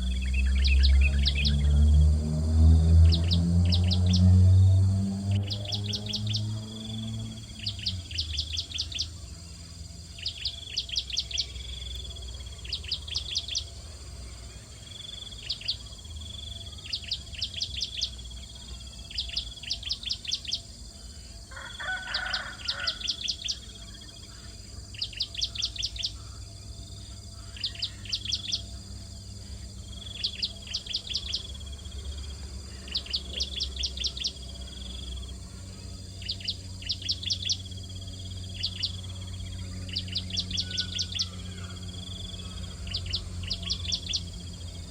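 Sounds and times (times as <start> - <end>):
steady low hum: 0.0 - 44.9
small bird repeating high call: 39.6 - 44.3.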